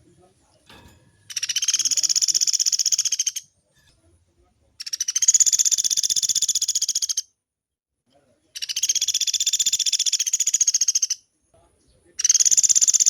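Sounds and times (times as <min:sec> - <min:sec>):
woodpecker rattling calls: 0:01.3 - 0:03.5, 0:04.8 - 0:07.3, 0:08.6 - 0:11.2, 0:12.2 - 0:13.0.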